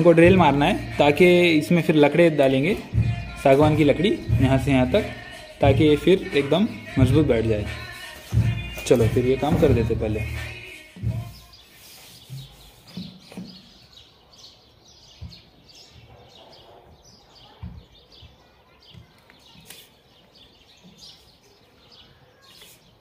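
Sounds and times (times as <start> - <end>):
birds chirping faintly: 0.0 - 23.0
dull low thumps: 2.9 - 4.9, 7.0 - 10.4.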